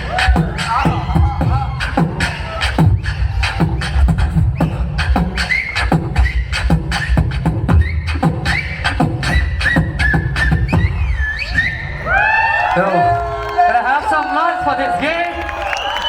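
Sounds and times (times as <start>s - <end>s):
beatboxing kick and snare: 0.0s - 11.2s
beatboxing clicks: 1.8s - 10.9s.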